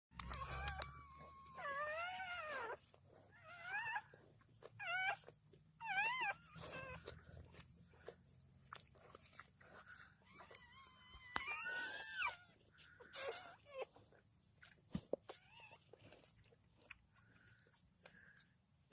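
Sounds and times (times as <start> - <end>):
puppies crying: 0.1 - 8.2, 9.0 - 14.1.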